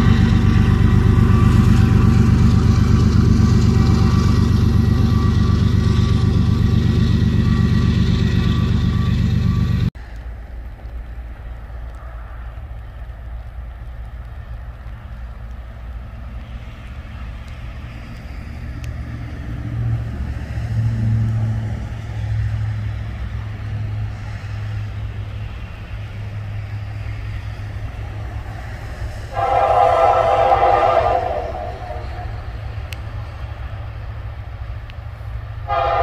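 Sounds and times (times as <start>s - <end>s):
locomotive horn blowing: 0.0s - 9.8s, 29.3s - 32.5s, 35.6s - 36.0s
freight train rumble: 0.0s - 36.0s.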